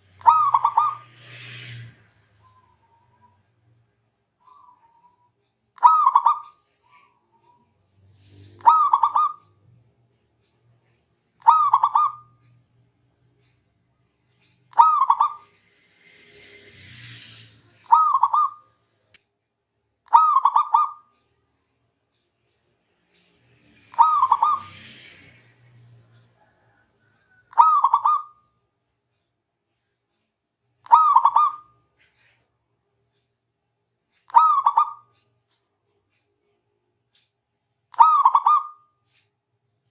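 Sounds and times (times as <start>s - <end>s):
dove cooing: 0.2s - 1.0s, 5.8s - 7.6s, 8.6s - 9.6s, 11.4s - 12.3s, 14.7s - 15.4s, 17.9s - 18.6s, 20.1s - 21.0s, 23.9s - 24.8s, 26.5s - 28.4s, 30.9s - 31.7s, 34.3s - 35.1s, 38.0s - 38.8s.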